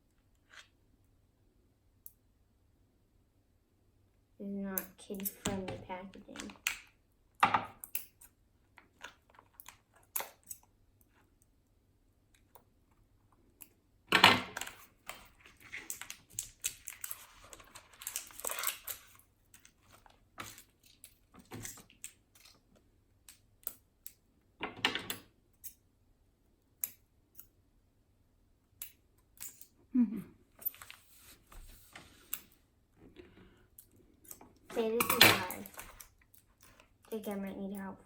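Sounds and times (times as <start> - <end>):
plastic packaging crinkling: 15.4 - 21.1.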